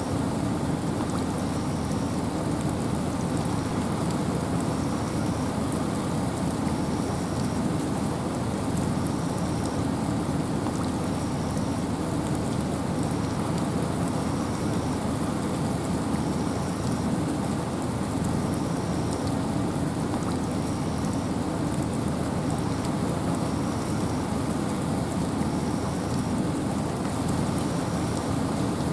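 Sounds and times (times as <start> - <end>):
rain: 0.0 - 28.9
wind: 0.0 - 28.9.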